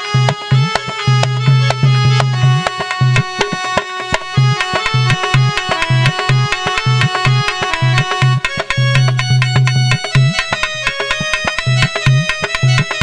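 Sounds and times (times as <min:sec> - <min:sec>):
hand drum rhythm: 0:00.0 - 0:13.0
melody instrument playing: 0:00.0 - 0:13.0.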